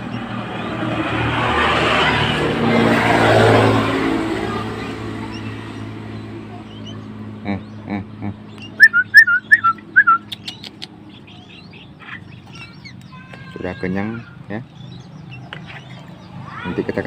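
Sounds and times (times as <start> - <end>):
baby bird chirping: 0.0 - 3.0, 3.6 - 17.0.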